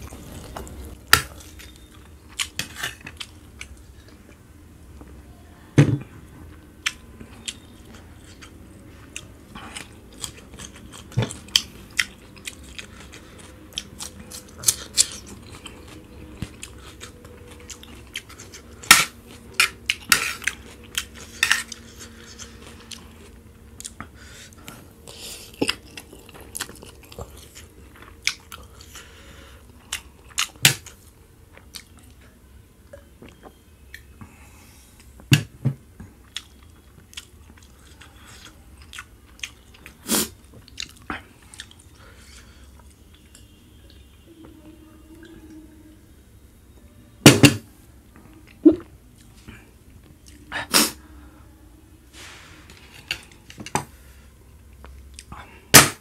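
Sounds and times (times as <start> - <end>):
person chewing noodles: 6.8 - 32.2, 36.0 - 44.2.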